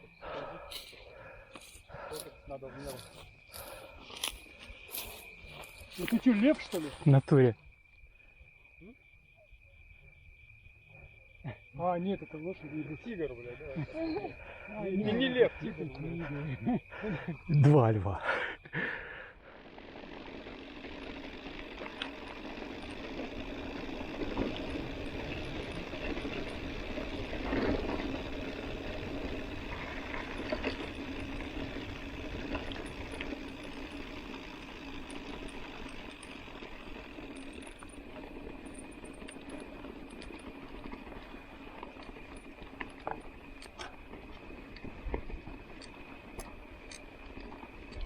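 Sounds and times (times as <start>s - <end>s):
bike tyre rolling noise: 0.0s - 7.5s, 18.3s - 48.0s
short rattles and clicks: 20.0s - 48.0s.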